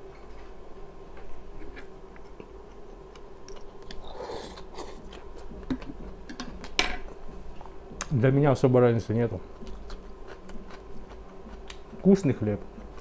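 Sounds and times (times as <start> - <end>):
person chewing bread: 1.5 - 6.3, 9.6 - 12.1.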